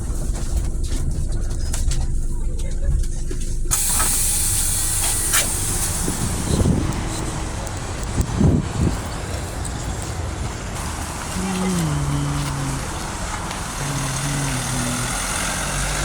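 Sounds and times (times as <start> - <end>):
bus engine running: 0.0 - 16.0
compressed air hiss: 3.7 - 6.6.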